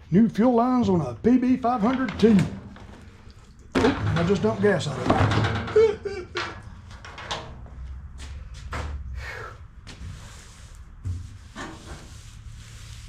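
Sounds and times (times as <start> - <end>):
parts and tools clattering: 1.7 - 7.8.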